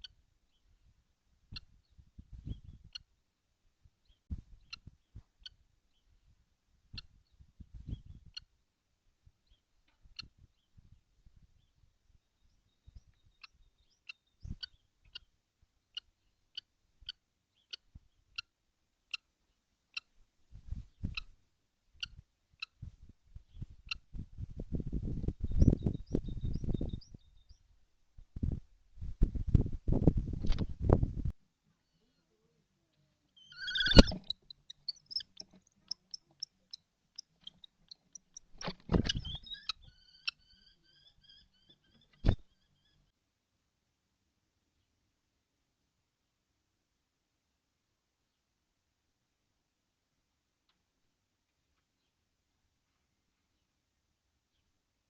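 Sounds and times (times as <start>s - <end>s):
short high chirps: 33.4s - 35.3s
kestrel calls: 33.4s - 43.1s.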